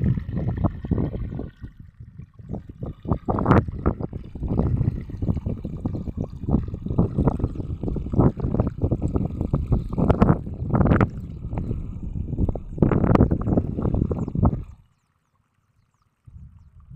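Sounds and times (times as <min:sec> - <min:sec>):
water rushing and splashing: 0:00.0 - 0:14.9.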